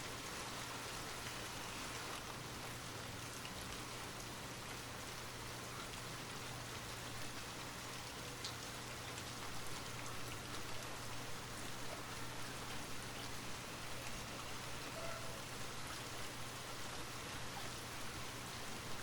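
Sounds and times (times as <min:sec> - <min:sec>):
light rain hissing: 0:00.0 - 0:19.0
raindrops ticking: 0:01.0 - 0:15.2.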